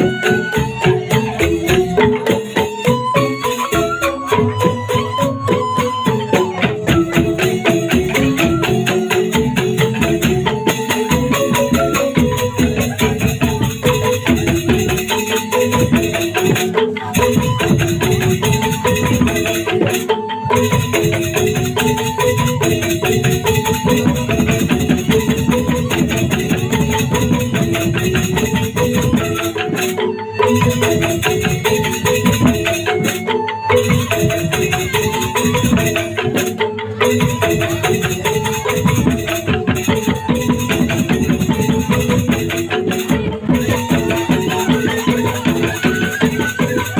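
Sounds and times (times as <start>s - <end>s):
fast rattle-like percussion: 0.0s - 46.9s.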